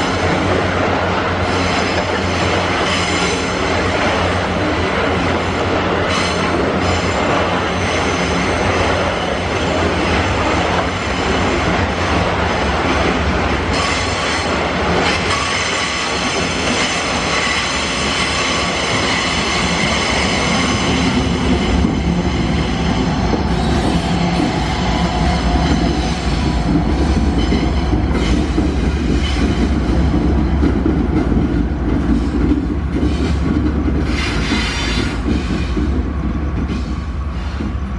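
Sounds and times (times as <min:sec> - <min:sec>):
train wagons rumbling past: 0:00.0 - 0:37.9
wheels clacking on rails: 0:00.0 - 0:37.9
steel wheels squealing on rails: 0:01.4 - 0:05.3, 0:06.0 - 0:11.8, 0:13.6 - 0:30.5, 0:33.0 - 0:36.0.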